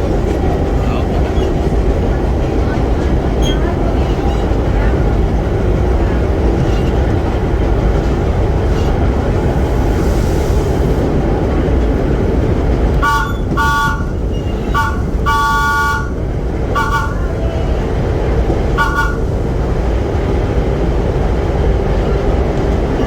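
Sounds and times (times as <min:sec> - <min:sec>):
subway train rumbling: 0:00.0 - 0:23.0
train horn three-tone chord: 0:13.0 - 0:17.4, 0:18.8 - 0:19.3.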